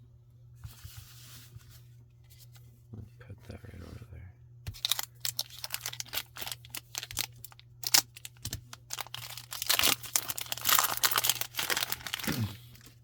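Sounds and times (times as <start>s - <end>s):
foil wrapper crinkling and tearing: 4.7s - 13.0s.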